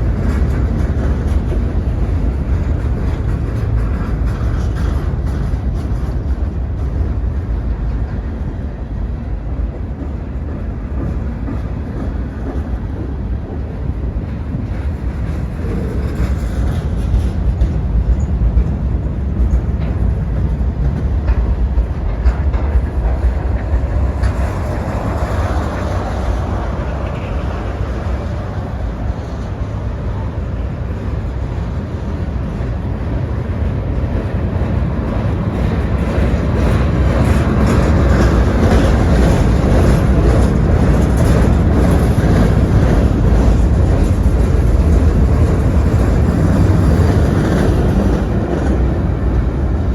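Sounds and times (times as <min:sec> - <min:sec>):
freight train wheels rumbling: 0:00.0 - 0:49.9.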